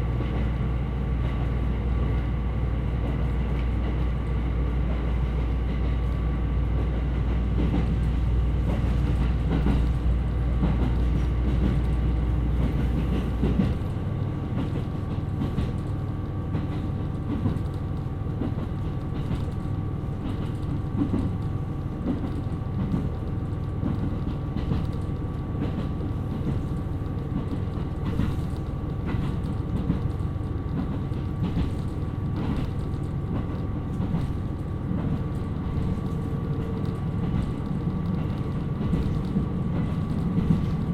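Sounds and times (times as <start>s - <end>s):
diesel railcar engine: 0.0s - 40.9s
train running noise: 0.0s - 40.9s
wheels clicking over rail joints: 20.2s - 40.9s.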